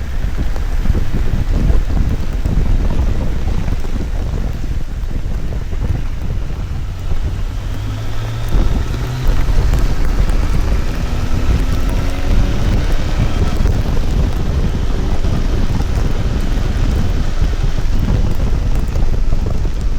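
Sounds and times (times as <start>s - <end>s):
motorcycle engine accelerating: 0.0s - 19.9s
wind buffeting microphone: 0.0s - 19.9s.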